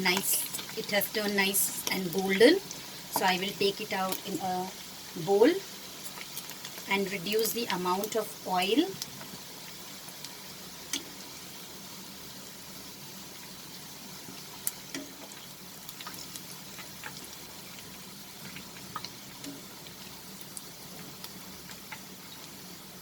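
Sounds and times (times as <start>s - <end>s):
oil sizzling: 0.0s - 23.0s
crackles and pops: 6.0s - 8.2s, 8.9s - 11.4s, 13.0s - 23.0s.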